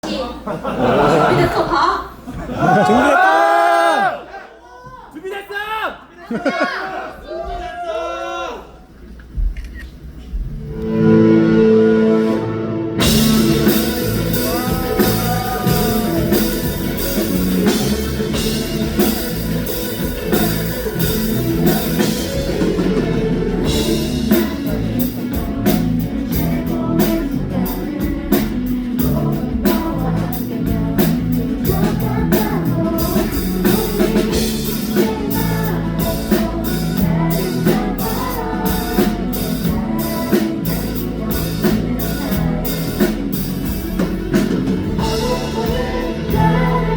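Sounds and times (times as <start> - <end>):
live rock band playing: 10.5 - 46.9
drums hitting hard: 12.9 - 46.9.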